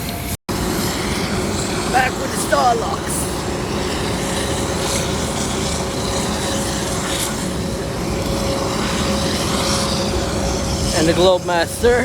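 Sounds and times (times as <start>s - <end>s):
outdoor machinery rumble and hiss: 0.0s - 12.0s.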